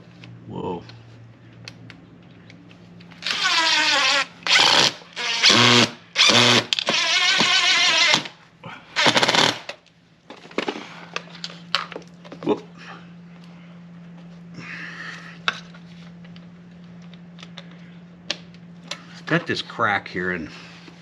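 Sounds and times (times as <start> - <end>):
power drill driving screw: 3.2 - 8.3, 9.0 - 9.7.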